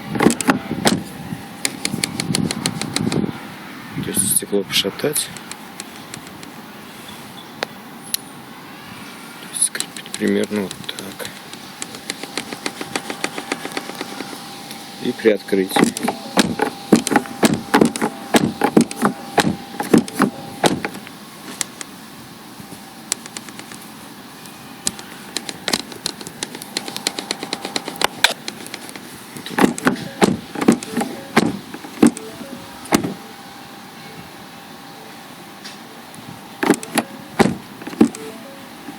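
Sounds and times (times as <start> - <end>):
car window glass squeaking: 0.1 - 1.1, 1.7 - 3.2, 10.0 - 14.5, 15.7 - 21.8, 24.9 - 33.2, 36.6 - 38.9.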